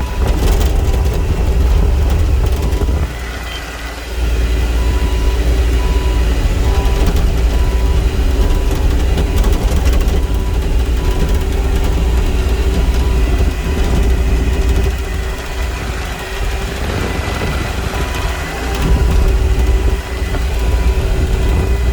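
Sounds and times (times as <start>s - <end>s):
excavator diesel engine running: 0.0s - 21.9s
repeating beep: 4.8s - 8.6s.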